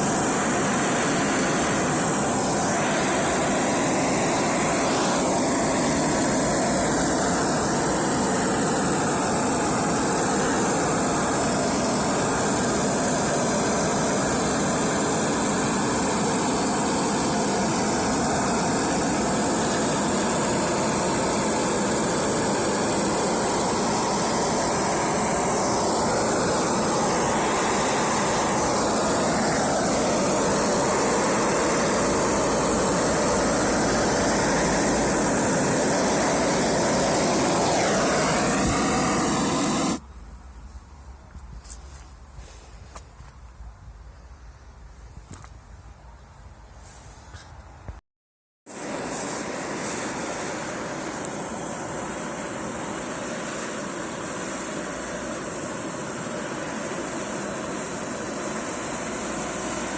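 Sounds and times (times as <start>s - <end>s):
handheld power tool running: 0.0s - 40.0s.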